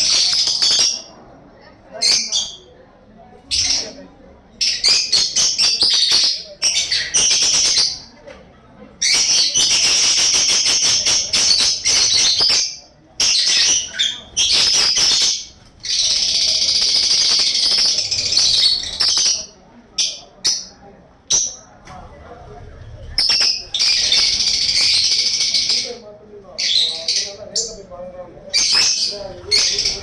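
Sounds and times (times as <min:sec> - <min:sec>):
bird chattering: 0:04.6 - 0:08.1, 0:09.0 - 0:21.6, 0:23.1 - 0:26.0, 0:28.5 - 0:30.0.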